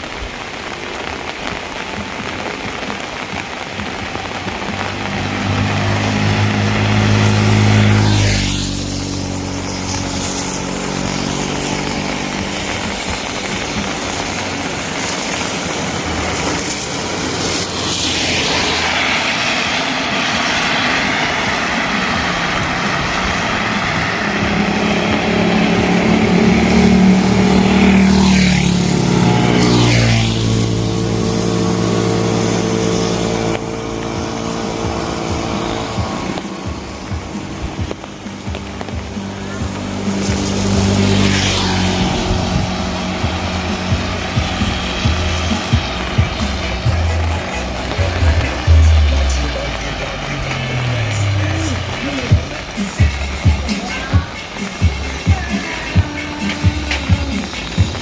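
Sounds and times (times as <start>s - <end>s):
rain hiss: 0.0s - 58.0s
tyre hiss on wet road: 0.0s - 58.0s
vehicle engine hum passing: 0.0s - 58.0s.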